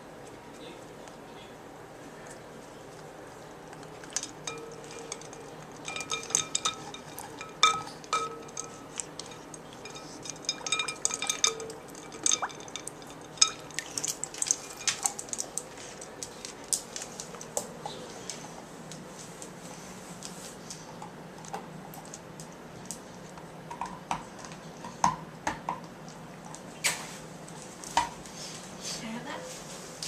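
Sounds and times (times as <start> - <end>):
ice cubes clinking in bowl: 4.0 - 15.5.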